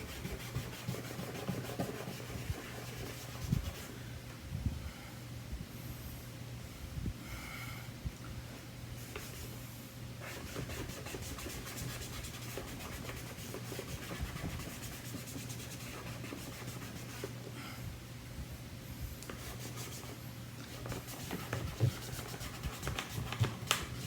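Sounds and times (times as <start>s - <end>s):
wiping plastic cover: 20.7s - 24.0s.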